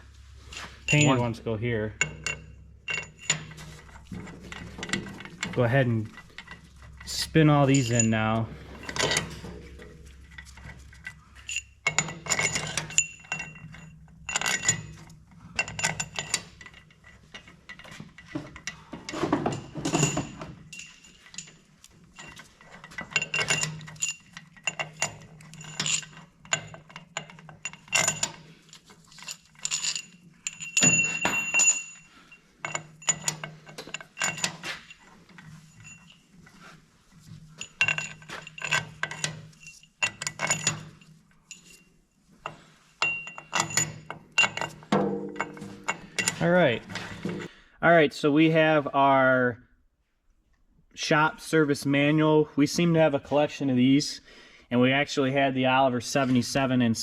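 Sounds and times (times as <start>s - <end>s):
metal bolts clinking: 0.5s - 47.5s.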